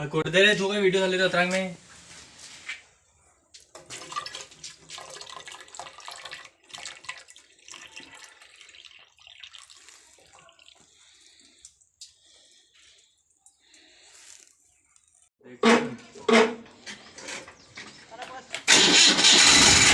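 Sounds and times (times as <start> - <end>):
water pouring and splashing: 3.6 - 15.3
water trickling: 3.6 - 15.3.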